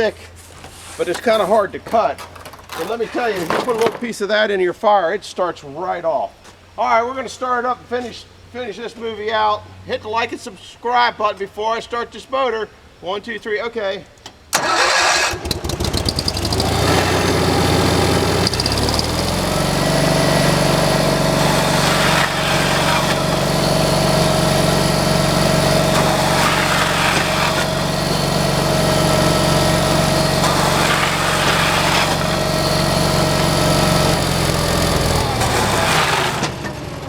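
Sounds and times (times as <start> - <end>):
small gasoline engine starting: 14.5 - 37.0
constant machine whine: 14.6 - 37.0.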